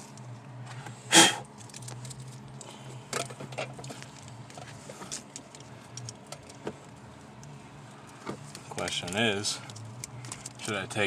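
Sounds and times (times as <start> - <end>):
low steady hum: 0.0 - 11.0
wiring connectors clicking and rattling: 1.6 - 7.5, 8.4 - 11.0.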